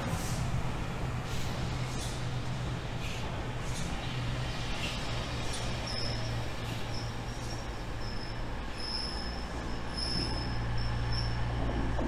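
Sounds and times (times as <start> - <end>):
train rumble: 0.0 - 12.0
high-pitched wheel squeal: 6.9 - 11.4.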